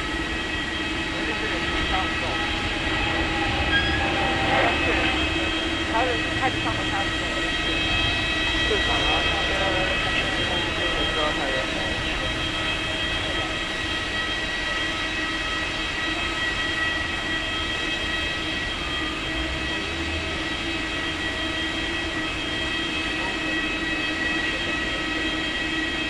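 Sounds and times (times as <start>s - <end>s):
aircraft turbine whine: 0.0s - 26.0s
low rumble: 1.1s - 13.7s.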